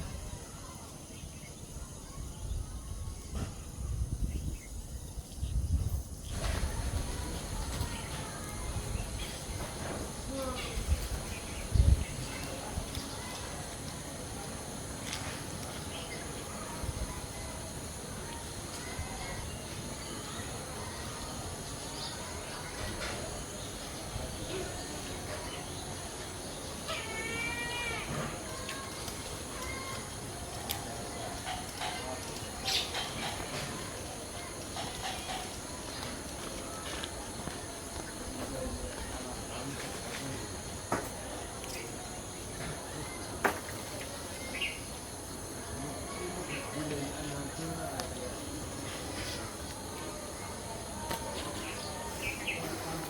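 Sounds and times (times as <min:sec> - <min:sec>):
wind rumble on microphone: 0:02.2 - 0:13.1.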